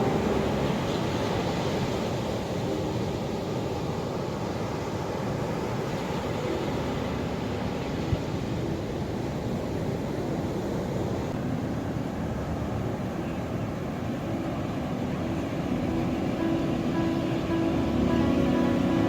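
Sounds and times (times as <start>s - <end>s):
ocean waves and surf: 0.0s - 19.0s
faint held musical tones: 11.4s - 19.0s.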